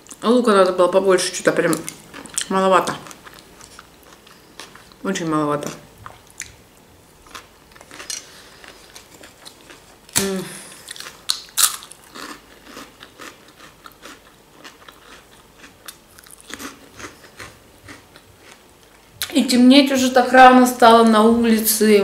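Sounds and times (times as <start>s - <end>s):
crunchy chewing: 1.7s - 5.0s, 7.2s - 19.0s
person humming mm: 10.2s - 10.8s.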